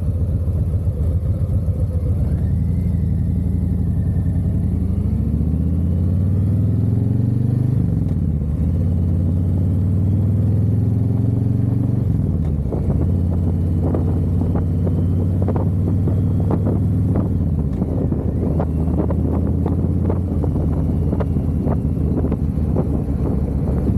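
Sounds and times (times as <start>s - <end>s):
motorcycle engine accelerating: 0.0s - 23.9s
wind buffeting microphone: 12.6s - 23.9s.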